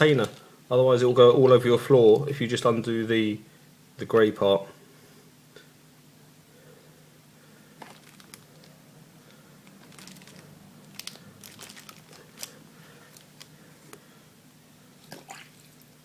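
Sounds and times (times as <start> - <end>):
plastic crinkling and clicking: 0.0 - 0.5, 7.8 - 14.0.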